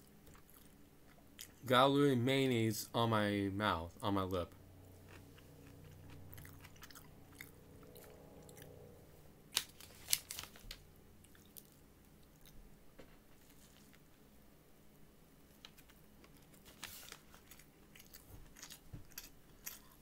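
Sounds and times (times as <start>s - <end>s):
person chewing crispy food: 4.9s - 8.8s, 9.5s - 12.6s, 15.5s - 20.0s.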